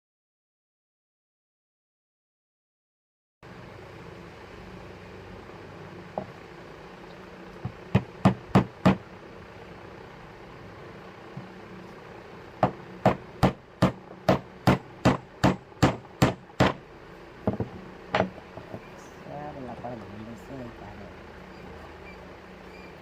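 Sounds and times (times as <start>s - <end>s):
hammer striking wood: 7.6s - 9.0s, 12.6s - 16.8s, 17.4s - 18.8s.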